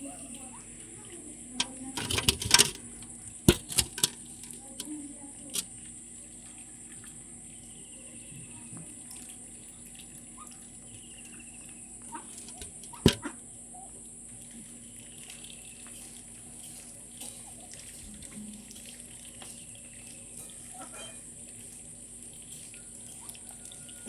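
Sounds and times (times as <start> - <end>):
water splashing: 14.4 - 24.0.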